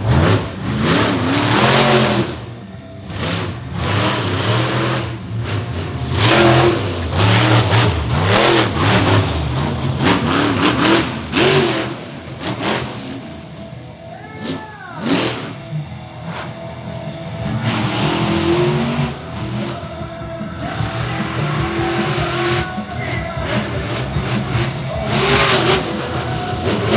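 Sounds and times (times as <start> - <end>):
monster truck engine revving: 0.0 - 26.9.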